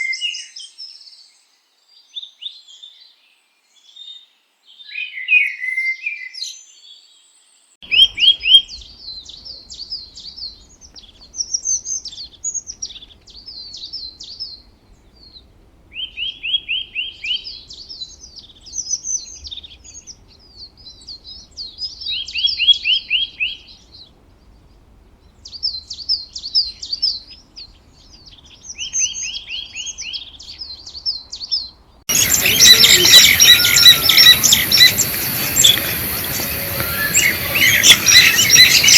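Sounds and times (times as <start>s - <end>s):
songbirds singing: 7.8s - 38.9s
dense bird calls: 32.1s - 38.9s
steady hiss: 32.1s - 38.9s.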